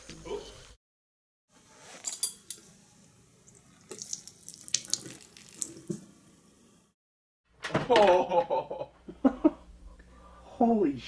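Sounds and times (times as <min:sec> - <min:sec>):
liquid splashing and trickling: 0:03.4 - 0:06.1.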